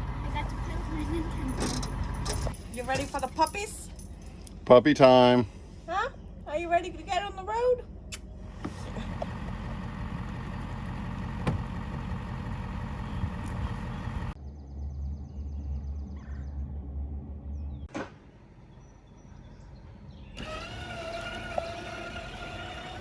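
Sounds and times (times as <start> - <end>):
vehicle running rumble: 0.0 - 4.8, 5.6 - 14.4, 17.6 - 23.0.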